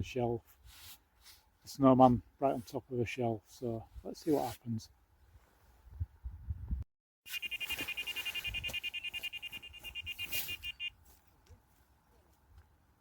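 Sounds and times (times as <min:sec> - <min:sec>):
electronic bite alarm beeping: 0:07.3 - 0:10.9.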